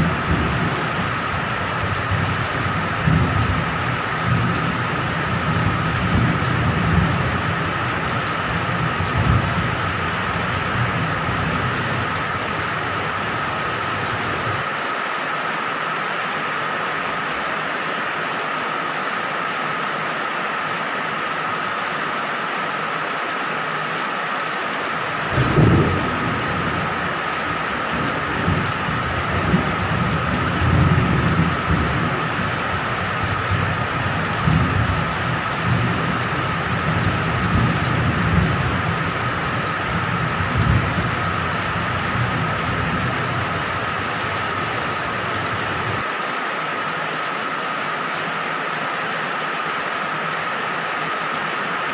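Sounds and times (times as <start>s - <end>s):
thunder rumbling: 0.0s - 14.6s, 25.1s - 46.1s
steady rain falling: 0.0s - 51.9s.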